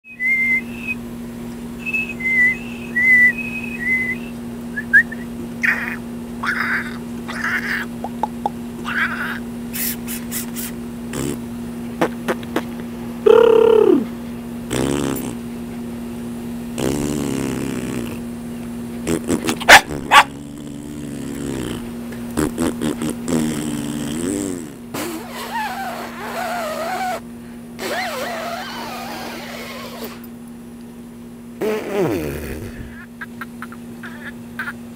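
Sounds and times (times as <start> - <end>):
low hum: 0.1 - 25.0
dog whining and calling: 5.6 - 7.9, 8.8 - 10.4, 19.4 - 21.8, 25.2 - 27.2, 27.8 - 30.3.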